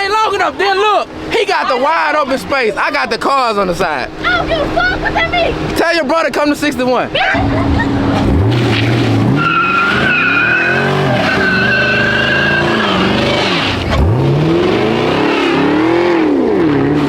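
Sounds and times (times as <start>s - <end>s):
truck engine revving: 0.0s - 17.0s
tires squealing: 7.0s - 17.0s.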